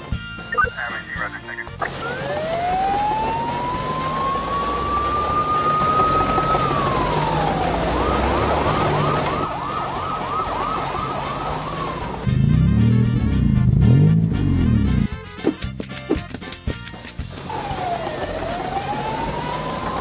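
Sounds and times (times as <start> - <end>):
police siren wailing and yelping: 0.6 - 12.3, 17.5 - 20.0.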